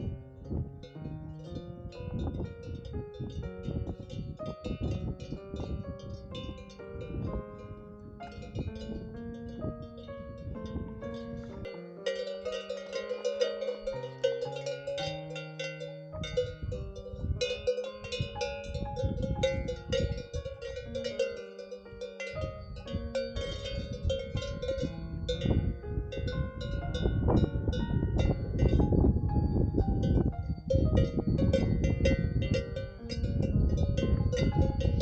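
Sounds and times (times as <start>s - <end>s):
low rumble: 0.0s - 11.7s
cowbells clanking: 0.8s - 35.0s.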